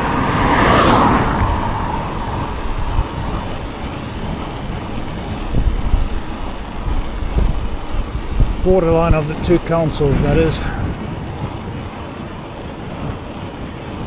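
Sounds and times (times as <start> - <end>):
passing vehicle: 0.0 - 14.0
wind buffeting microphone: 0.0 - 14.0.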